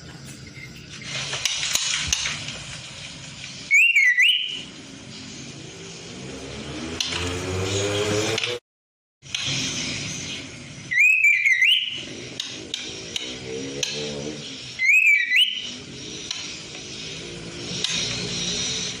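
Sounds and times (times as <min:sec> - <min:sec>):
bird whistled calls: 0:03.7 - 0:04.7, 0:10.9 - 0:12.1, 0:14.8 - 0:15.8.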